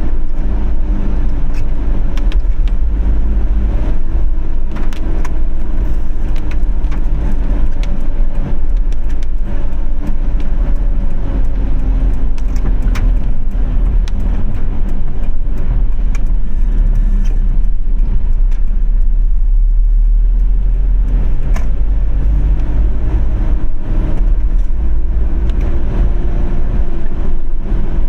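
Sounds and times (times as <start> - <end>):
car road and engine rumble: 0.0 - 28.0
raindrops ticking: 4.6 - 22.0.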